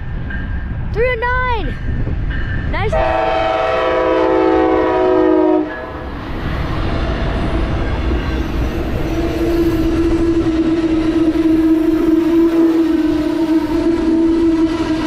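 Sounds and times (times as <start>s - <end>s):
train rumbling past: 0.0s - 15.0s
train horn chord: 2.9s - 6.1s, 9.1s - 15.0s.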